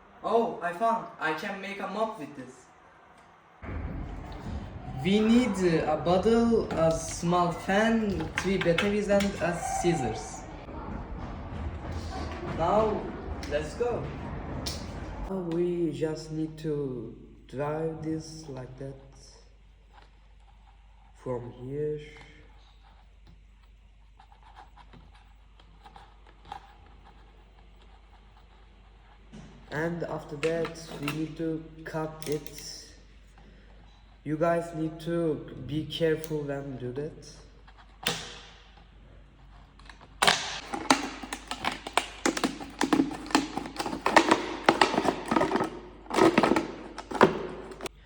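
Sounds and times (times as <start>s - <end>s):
marker scraping on plastic bottle: 24.1s - 29.3s
plastic bottle being cut: 40.2s - 47.9s.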